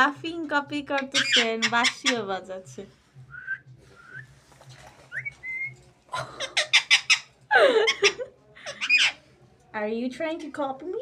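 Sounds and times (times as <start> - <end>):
parakeet whistling: 1.1 - 2.3, 5.1 - 5.8, 6.5 - 7.3.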